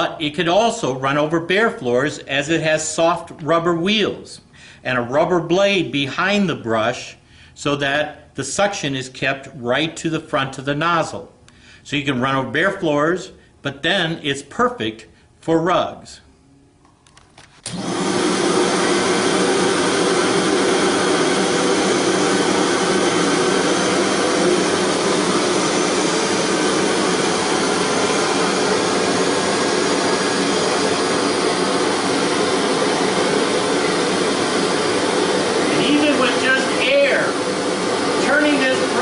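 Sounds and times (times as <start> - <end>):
vacuum cleaner running: 17.6 - 39.0.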